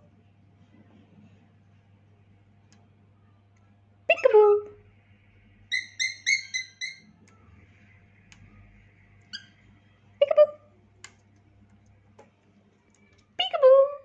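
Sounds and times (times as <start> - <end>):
faint low hum: 0.0 - 14.0
cockatiel chirping: 5.7 - 7.1.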